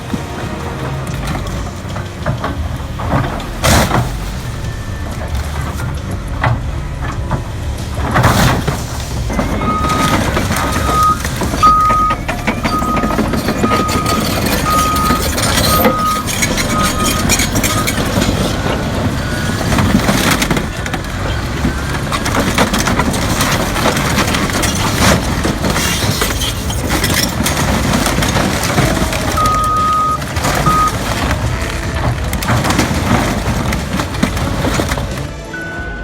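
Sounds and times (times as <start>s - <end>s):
machinery clanks and knocks: 0.0s - 35.9s
heavy machinery rumbling: 0.0s - 36.0s
reversing alarm beeping: 4.3s - 7.2s, 9.3s - 22.3s, 28.8s - 31.1s, 35.4s - 36.0s.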